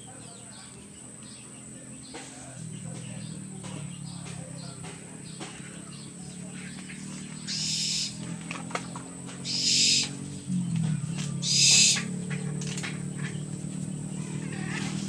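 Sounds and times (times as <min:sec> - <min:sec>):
steady low hum: 0:00.0 - 0:15.0
owl hissing call: 0:07.5 - 0:08.2, 0:09.4 - 0:10.3, 0:11.4 - 0:12.1.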